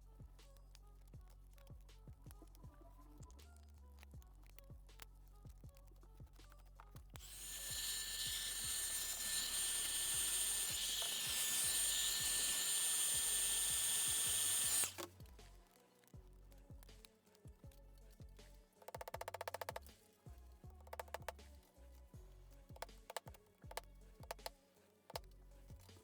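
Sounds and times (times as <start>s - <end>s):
small electric tool whining: 7.2s - 15.3s.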